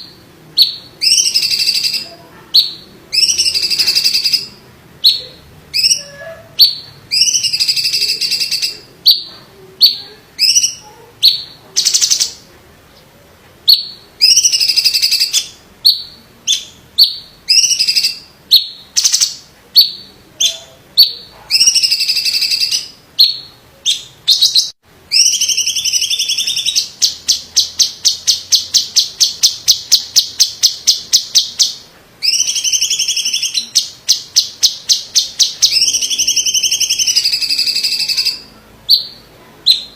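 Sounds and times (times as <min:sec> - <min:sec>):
bird singing whistled phrases: 0:00.6 - 0:02.0, 0:02.6 - 0:12.4, 0:13.7 - 0:39.9
bird rapid repeated notes: 0:02.6 - 0:12.4.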